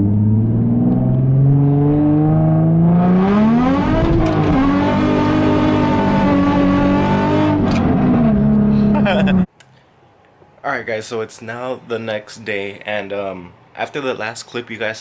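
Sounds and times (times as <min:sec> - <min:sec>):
car engine under throttle: 0:00.0 - 0:09.5.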